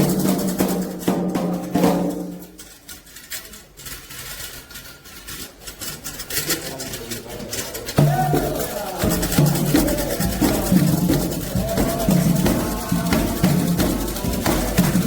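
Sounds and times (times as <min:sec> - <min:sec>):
hand drum strikes: 0:00.0 - 0:02.6, 0:07.9 - 0:15.0
held singing: 0:07.8 - 0:15.0.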